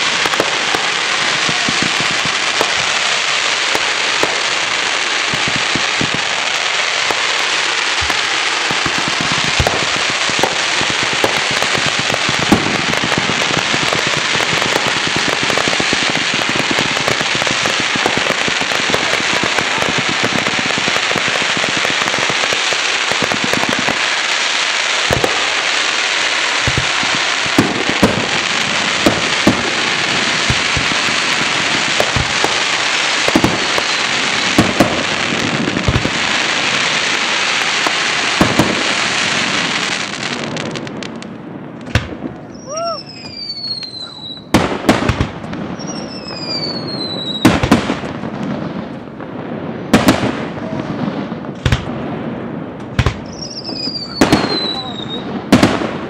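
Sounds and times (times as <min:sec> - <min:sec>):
fireworks crackling and hissing: 0:00.0 - 0:56.0
fireworks shells bursting: 0:05.3 - 0:16.3.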